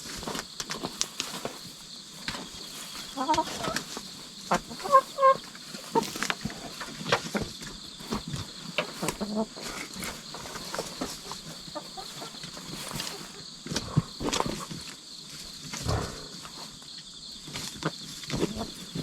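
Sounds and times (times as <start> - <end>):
insects chirring: 0.0 - 19.0
hen scratching and pecking: 0.1 - 16.8
hen clucking: 2.3 - 7.4, 8.5 - 14.7, 17.8 - 19.0.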